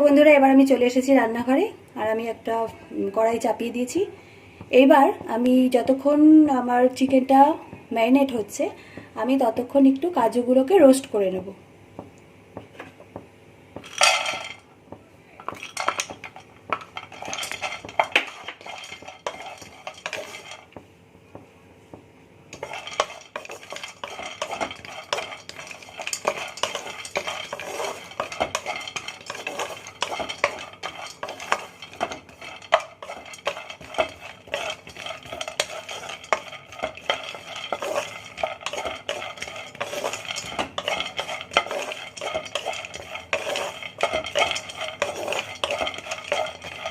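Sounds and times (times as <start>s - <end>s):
nuts rattling in a pan: 13.8s - 14.6s, 15.4s - 20.7s, 22.6s - 46.9s.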